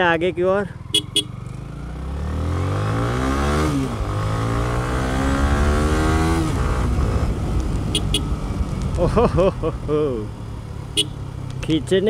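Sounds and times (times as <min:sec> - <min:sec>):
motorcycle engine revving: 0:00.7 - 0:09.2.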